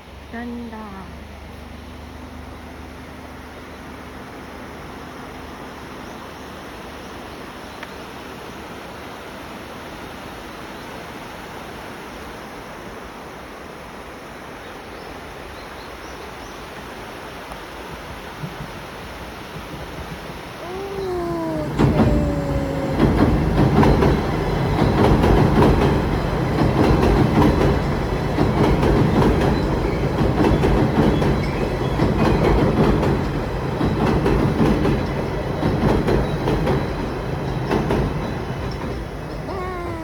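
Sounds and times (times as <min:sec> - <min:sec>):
train rumbling past: 0:00.0 - 0:14.4, 0:16.9 - 0:40.0
wheels clattering on rail joints: 0:22.9 - 0:39.5.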